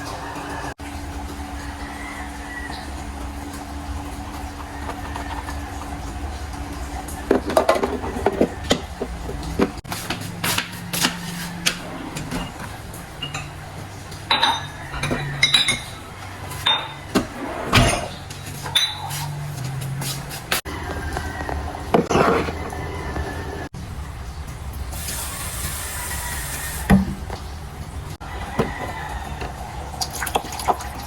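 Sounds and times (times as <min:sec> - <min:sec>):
dishes and utensils clinking: 0:07.3 - 0:09.8, 0:11.8 - 0:19.9.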